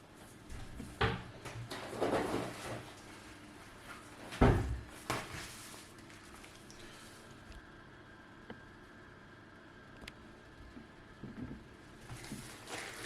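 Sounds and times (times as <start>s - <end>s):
rustling scrape: 5.3s - 6.5s, 12.1s - 13.0s.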